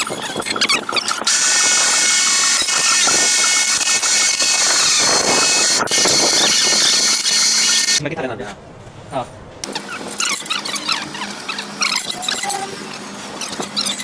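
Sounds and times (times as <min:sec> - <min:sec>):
welding arc hissing and crackling: 0:01.2 - 0:08.0.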